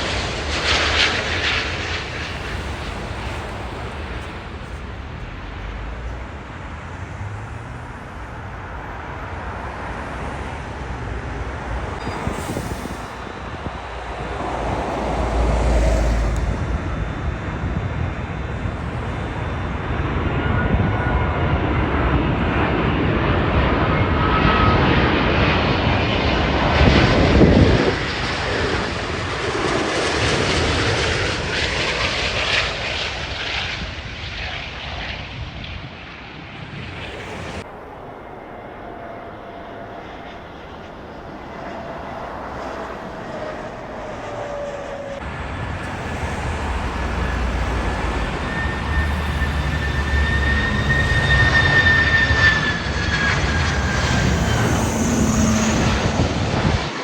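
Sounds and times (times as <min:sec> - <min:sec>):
jet airliner passing: 0:00.0 - 0:57.0
faint falling whine: 0:36.6 - 0:56.9.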